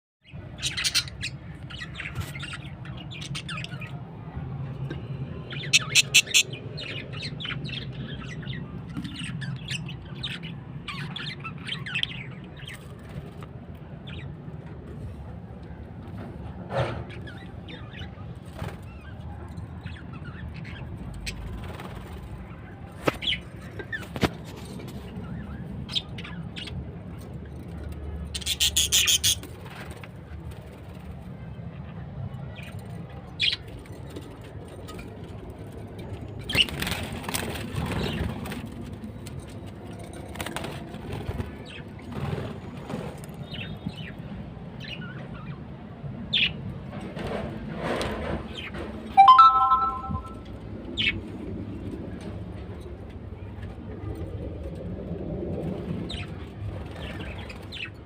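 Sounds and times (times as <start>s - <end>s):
budgies chirping: 5.6s - 12.1s, 28.4s - 29.5s.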